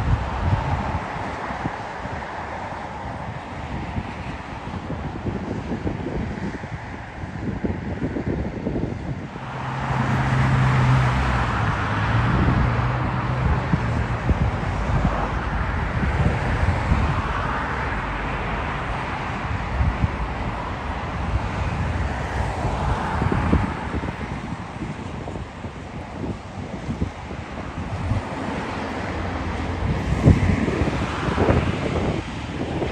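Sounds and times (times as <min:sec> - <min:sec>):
jet engines roaring: 0:00.0 - 0:32.9
wind buffeting microphone: 0:00.0 - 0:32.9.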